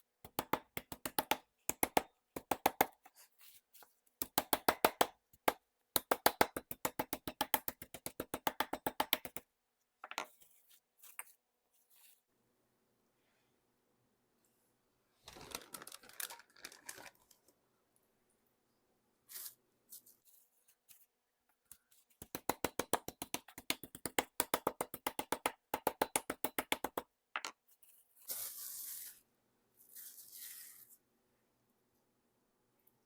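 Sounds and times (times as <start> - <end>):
rustling and crinkling: 15.2 - 17.6, 19.2 - 21.2.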